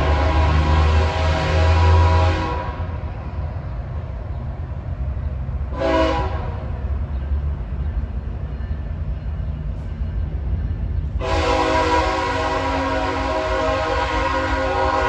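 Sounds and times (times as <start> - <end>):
train horn blast: 0.0 - 3.1, 5.7 - 6.8, 11.2 - 15.0
train rumbling past: 0.0 - 15.0.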